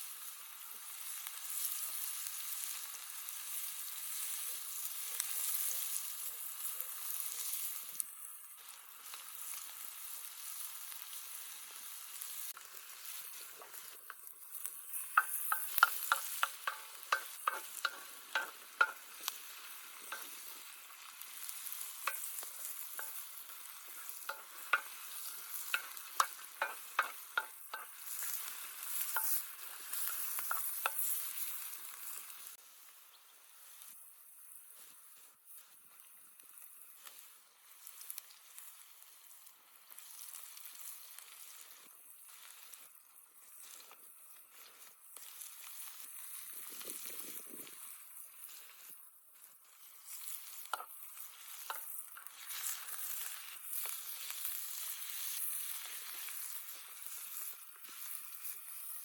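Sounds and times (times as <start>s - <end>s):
food sizzling in hot oil: 0.0s - 59.0s
utensil knocking against pan: 15.2s - 19.1s, 22.1s - 23.2s, 24.3s - 25.0s, 25.7s - 28.0s.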